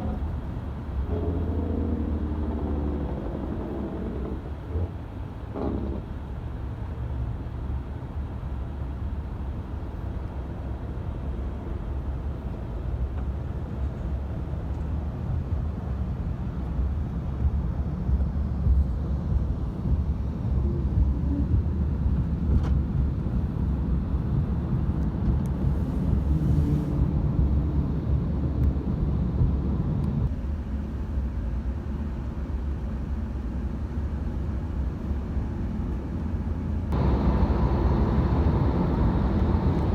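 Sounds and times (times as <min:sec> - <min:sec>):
jet engines rumbling: 0:36.9 - 0:39.9.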